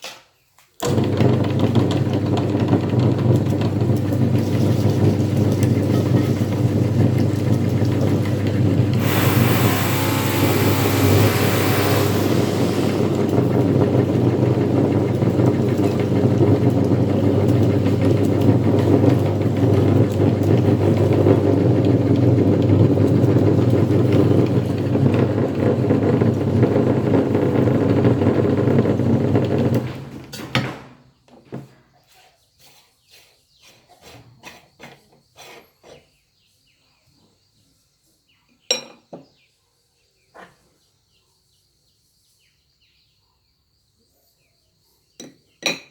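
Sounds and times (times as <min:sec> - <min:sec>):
meat grinder motor running: 0:00.8 - 0:30.7.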